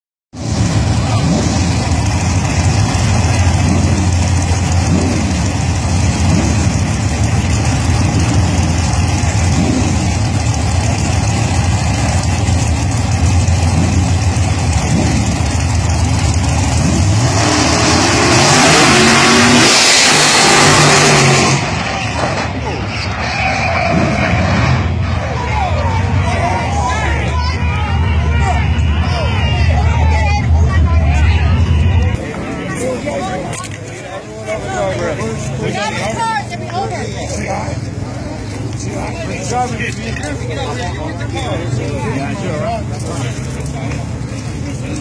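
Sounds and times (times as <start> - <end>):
car engine revving: 0.4 - 25.4
loud rushing noise: 13.5 - 32.3.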